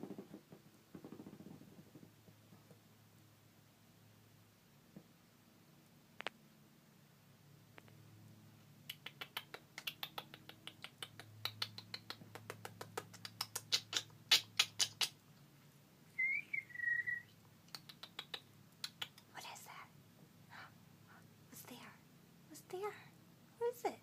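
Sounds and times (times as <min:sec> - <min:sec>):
bird making sharp clicks: 0:08.8 - 0:15.2, 0:17.7 - 0:19.3
bird whistled chirps: 0:16.2 - 0:17.3.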